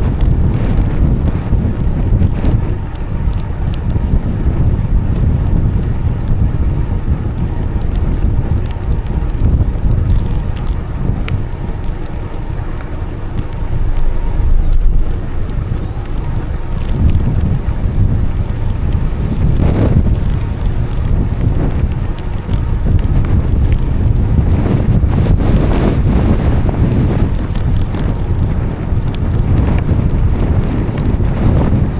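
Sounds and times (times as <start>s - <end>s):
bicycle ticks and rattles: 0.0s - 31.9s
wind buffeting microphone: 0.0s - 31.9s.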